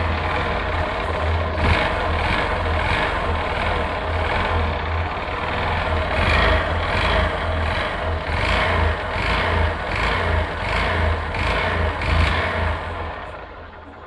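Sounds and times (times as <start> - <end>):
motorcycle engine knocking: 0.0 - 14.0.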